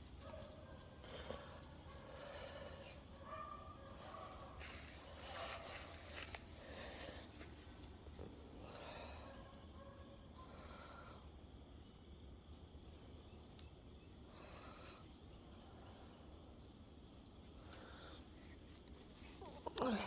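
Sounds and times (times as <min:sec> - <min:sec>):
high insect drone: 0:00.0 - 0:20.0
soft rustles: 0:04.0 - 0:08.6, 0:15.0 - 0:20.0.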